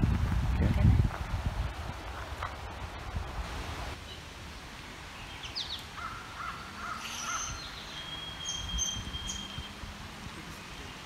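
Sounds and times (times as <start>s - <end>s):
songbirds singing: 4.0s - 11.0s.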